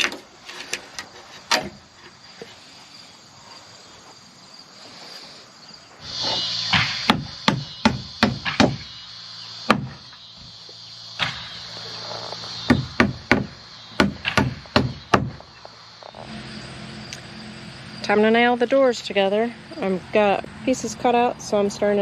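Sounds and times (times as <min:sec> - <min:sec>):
crickets chirping: 0:00.0 - 0:22.0
hammer driving nails into wood: 0:12.7 - 0:15.4.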